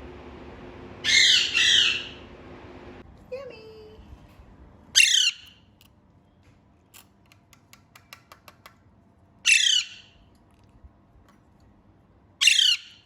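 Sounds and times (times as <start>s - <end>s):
parakeet squawking: 1.0s - 2.2s, 5.0s - 5.6s, 9.4s - 10.2s, 12.4s - 13.0s.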